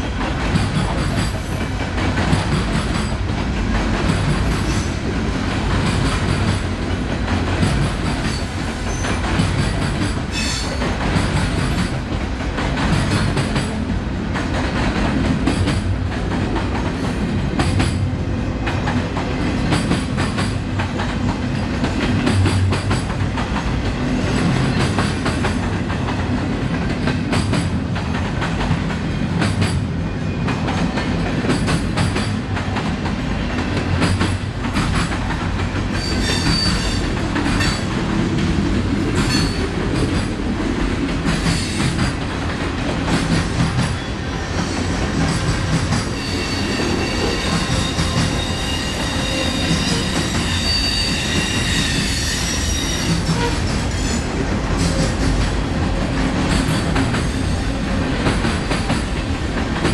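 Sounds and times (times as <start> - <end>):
train wheels clicking over rail joints: 0.0 - 18.1, 18.7 - 59.9
high-pitched wheel squeal: 36.0 - 37.0, 46.1 - 53.6.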